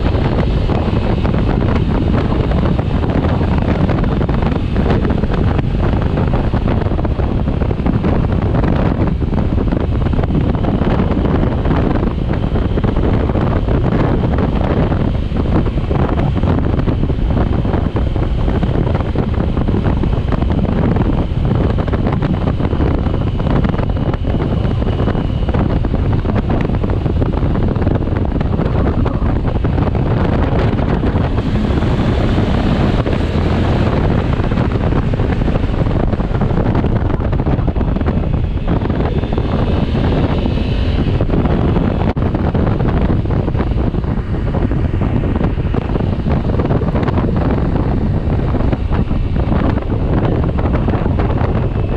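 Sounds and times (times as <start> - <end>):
wind rushing over microphone: 0.0 - 51.9.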